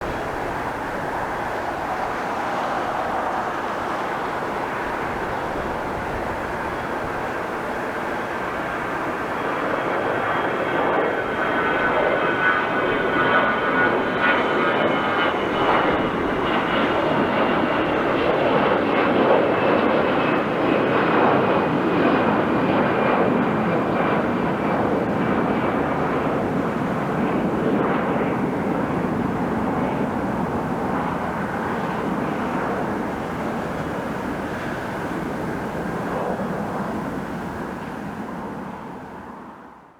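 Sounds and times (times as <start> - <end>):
high engine whine: 0.0 - 18.3
jet airliner engine roar: 0.0 - 39.9.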